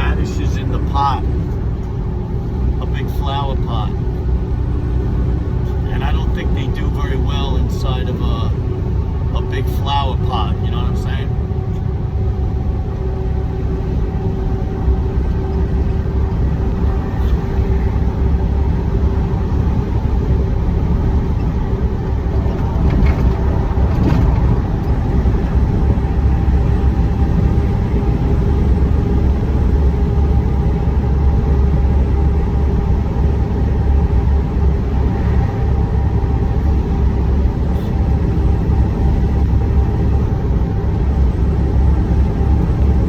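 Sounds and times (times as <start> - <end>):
truck engine and road rumble: 0.0 - 43.0
light rattles: 21.3 - 26.1.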